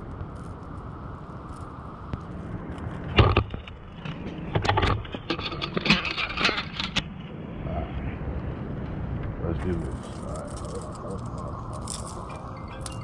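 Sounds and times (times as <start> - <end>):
gear clicking and scraping: 0.0 - 7.2, 9.6 - 13.0
steady low rumble: 0.0 - 13.0.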